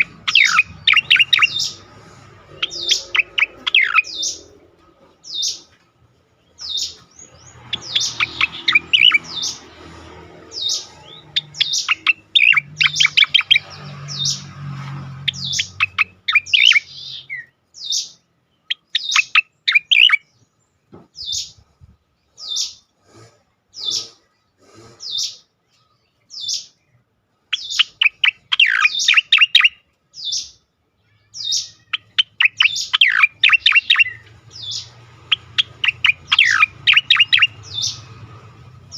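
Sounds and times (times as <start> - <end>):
bird singing high chattering notes: 0.0 - 5.7, 6.4 - 20.5, 27.5 - 30.6, 31.2 - 38.9.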